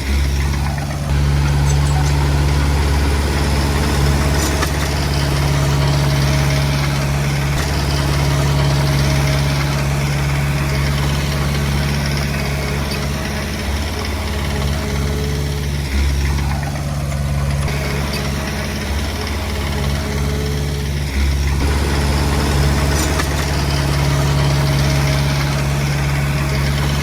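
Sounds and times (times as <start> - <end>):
bulldozer diesel engine running: 0.0 - 27.0.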